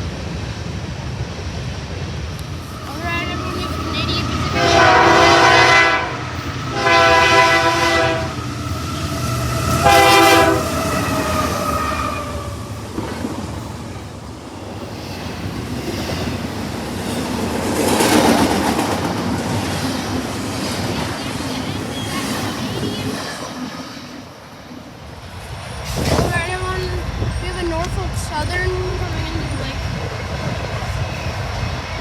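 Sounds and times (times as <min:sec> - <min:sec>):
train rumble and wheel clatter: 0:00.0 - 0:32.0
locomotive air horn blasts: 0:02.6 - 0:08.4, 0:09.6 - 0:12.6.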